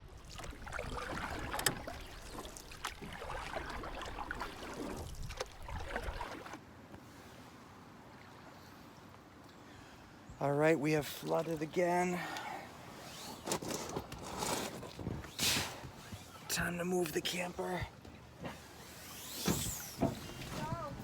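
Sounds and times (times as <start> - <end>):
water lapping at shore: 0.0 - 10.0.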